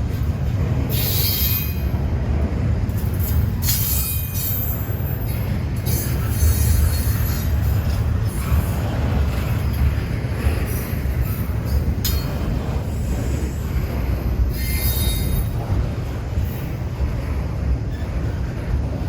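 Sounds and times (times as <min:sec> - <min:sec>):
train wheels rumbling on rails: 0:00.0 - 0:19.0
high wheel squeal: 0:00.9 - 0:02.0, 0:14.3 - 0:15.6.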